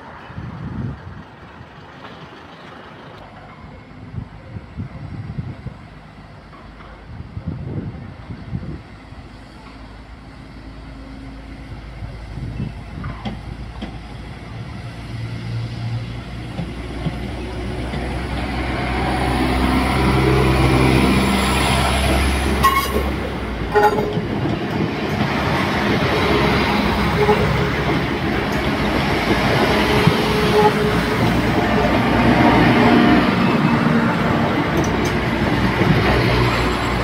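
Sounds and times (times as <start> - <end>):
train wheels rumbling on rail: 0.0 - 37.0
wheels clacking over rail joints: 1.0 - 3.9, 21.6 - 37.0.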